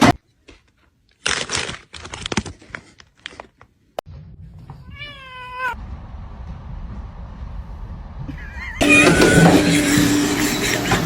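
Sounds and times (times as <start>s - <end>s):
rustling and crinkling: 0.4s - 4.9s
cat meowing: 4.8s - 5.8s, 8.8s - 9.7s.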